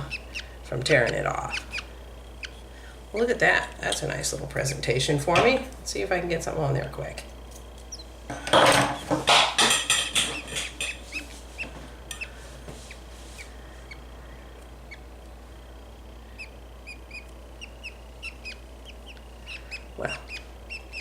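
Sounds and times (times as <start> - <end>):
budgies chirping: 0.0 - 3.5, 7.8 - 8.2, 10.2 - 21.0
budgie chick screaming: 16.3 - 21.0.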